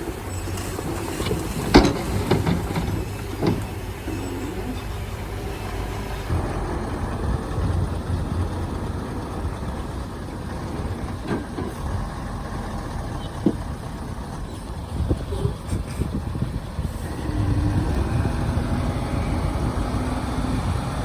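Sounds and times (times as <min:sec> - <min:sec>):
diesel earthmoving machine rumble: 0:00.0 - 0:21.0.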